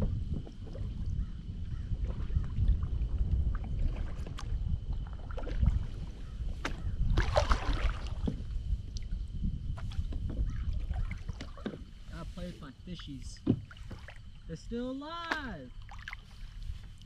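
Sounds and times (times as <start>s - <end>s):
wind buffeting microphone: 0.0s - 17.0s
knocks from kayak: 6.6s - 7.3s, 9.8s - 11.9s, 13.4s - 14.2s.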